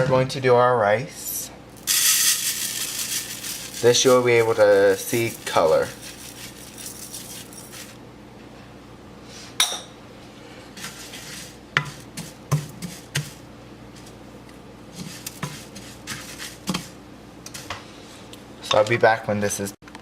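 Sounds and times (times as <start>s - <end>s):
utensil scraping and knocking a pan: 10.8s - 13.4s, 15.0s - 16.9s.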